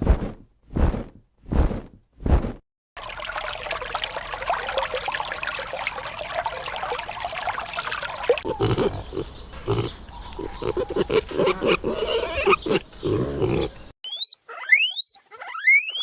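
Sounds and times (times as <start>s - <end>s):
pigs grunting: 8.4s - 13.9s
high animal calls chattering: 8.4s - 16.0s.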